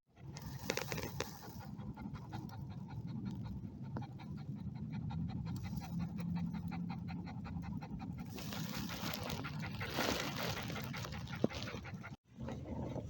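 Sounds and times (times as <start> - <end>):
dog panting: 0.5 - 12.2.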